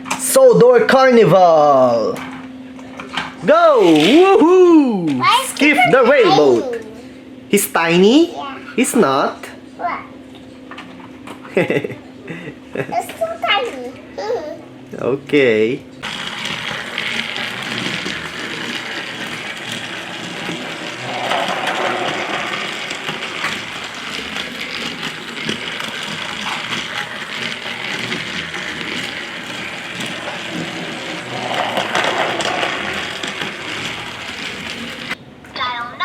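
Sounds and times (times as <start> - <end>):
toy train motor whirring: 3.8 - 4.3, 5.2 - 6.9, 16.0 - 35.2
toy train rattling on track: 5.2 - 6.8, 16.0 - 35.2.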